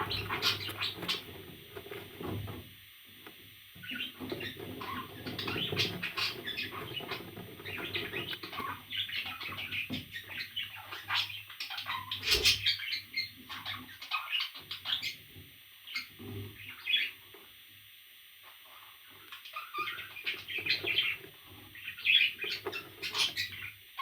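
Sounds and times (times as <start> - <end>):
parrot chirping and chattering: 0.0 - 1.3, 3.8 - 15.2, 19.3 - 21.2.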